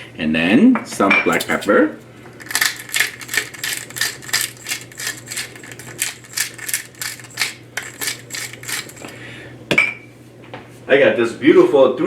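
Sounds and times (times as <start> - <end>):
pepper mill grinding: 1.3 - 9.3.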